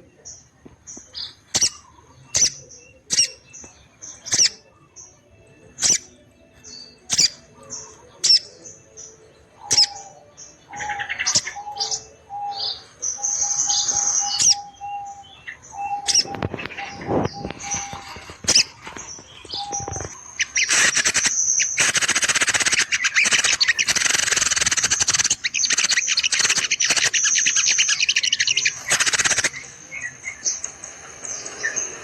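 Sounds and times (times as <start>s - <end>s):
bird chirping: 0.0s - 32.0s.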